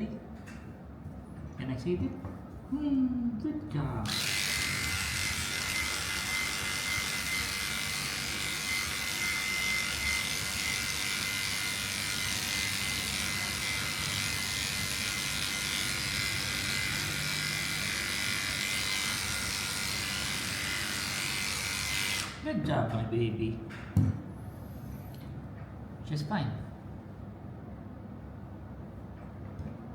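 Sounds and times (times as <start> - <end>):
electric clippers whining: 4.0 - 22.4.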